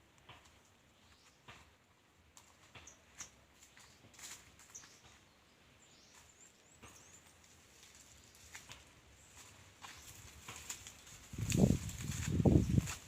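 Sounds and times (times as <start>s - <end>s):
dry plants rustling and snapping: 2.3s - 5.2s, 6.1s - 13.0s.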